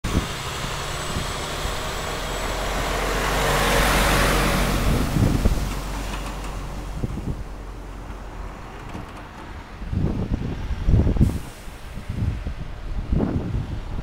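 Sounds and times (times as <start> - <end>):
vehicle passing by: 0.1 - 11.2.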